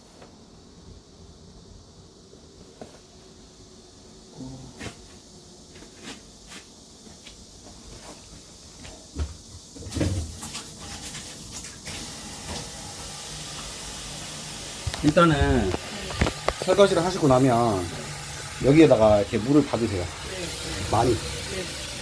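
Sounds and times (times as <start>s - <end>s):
running water: 9.9s - 22.0s.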